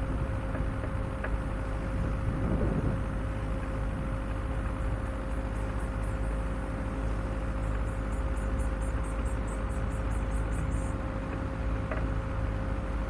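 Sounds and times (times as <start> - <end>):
vehicle engine rumble and whine: 0.0 - 13.0
insects chirping: 7.6 - 11.0.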